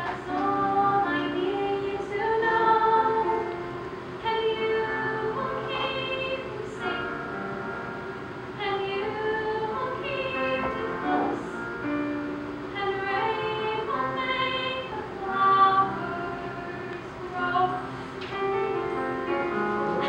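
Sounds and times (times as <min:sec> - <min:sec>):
woman singing: 0:00.0 - 0:07.4, 0:08.6 - 0:11.6, 0:12.7 - 0:17.9
instrumental accompaniment: 0:00.0 - 0:20.0.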